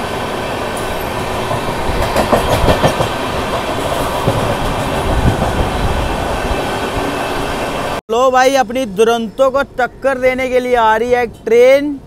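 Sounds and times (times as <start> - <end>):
train rushing at speed: 0.0 - 8.0.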